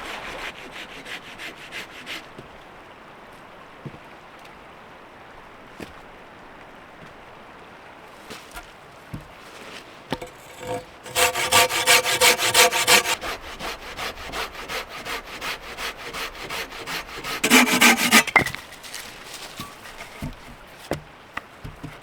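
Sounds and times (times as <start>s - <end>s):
hand saw cutting log: 0.0s - 2.4s, 10.1s - 20.5s.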